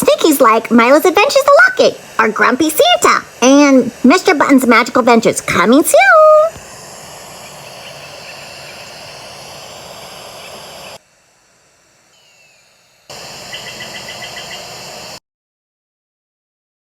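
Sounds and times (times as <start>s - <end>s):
outdoor wind noise: 0.0s - 15.2s
faint high bird chirps: 7.4s - 11.0s, 12.1s - 15.0s.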